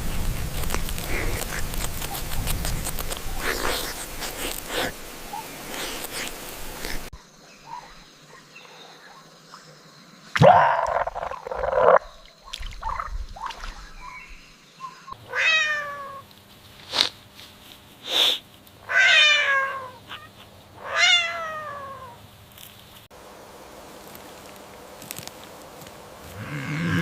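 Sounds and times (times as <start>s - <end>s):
cat meowing: 15.3s - 16.2s, 18.8s - 22.2s.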